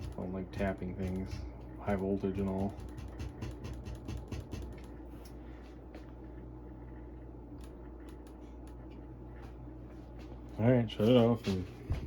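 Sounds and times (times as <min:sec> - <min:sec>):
tool tapping circuit board: 0:00.0 - 0:04.9
steady low hum: 0:00.0 - 0:12.0.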